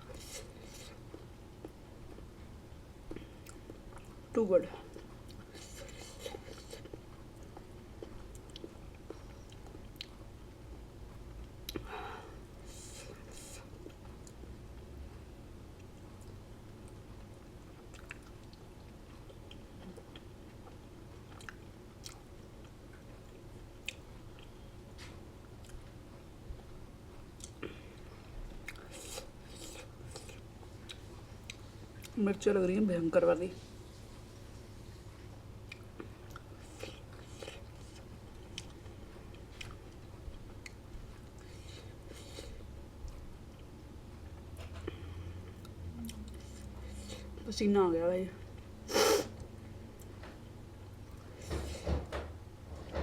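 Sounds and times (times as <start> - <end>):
steady low hum: 0.0 - 53.0
person chewing: 4.9 - 10.2, 17.8 - 24.5, 28.4 - 32.1, 35.6 - 43.7, 44.6 - 47.4.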